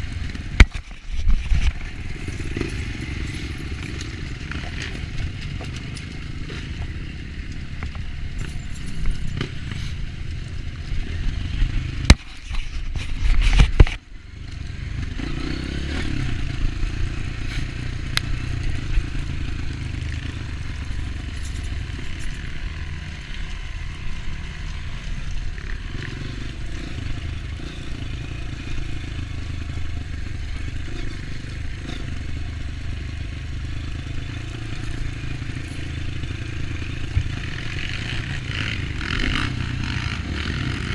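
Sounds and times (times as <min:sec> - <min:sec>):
dirt bike engine running: 0:00.0 - 0:40.9
rattling and scraping: 0:00.1 - 0:07.0, 0:07.8 - 0:10.0, 0:20.9 - 0:22.6.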